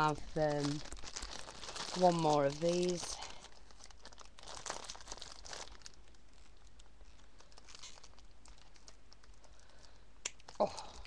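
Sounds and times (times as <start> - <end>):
craft flowers crinkling: 0.0 - 11.0.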